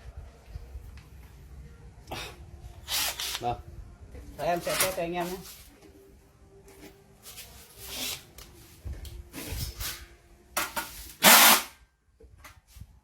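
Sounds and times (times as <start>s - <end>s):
loud short burst of noise: 11.2s - 11.8s.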